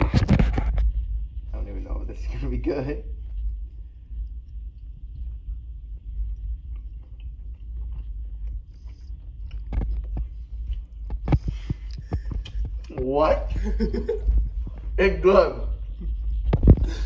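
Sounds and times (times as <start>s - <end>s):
low rumble: 0.0s - 17.0s
person chewing: 4.1s - 12.9s.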